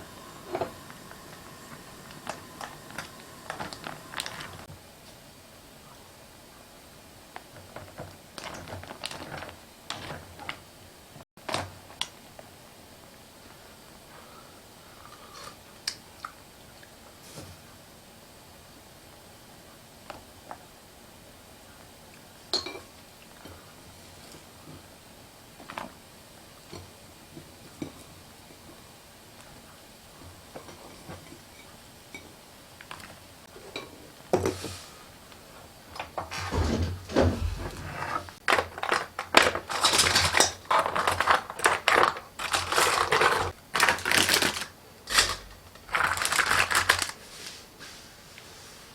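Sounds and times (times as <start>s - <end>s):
kitchen clatter: 22.5s - 22.9s, 35.9s - 47.2s.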